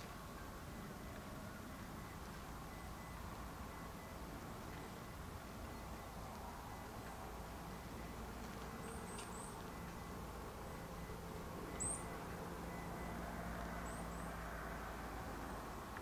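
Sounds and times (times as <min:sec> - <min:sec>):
small birds chirping: 0:07.8 - 0:13.1, 0:13.8 - 0:14.4.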